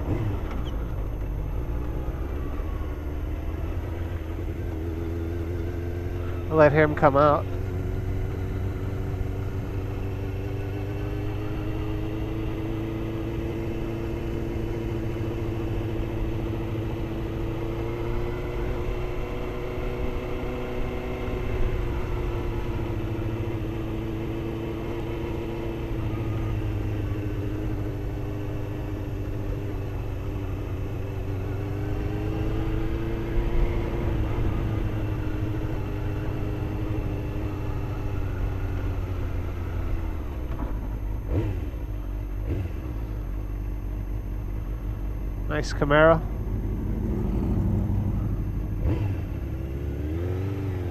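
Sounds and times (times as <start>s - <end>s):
motorcycle engine running slowly: 0.0s - 50.9s
low rumble: 43.0s - 50.3s.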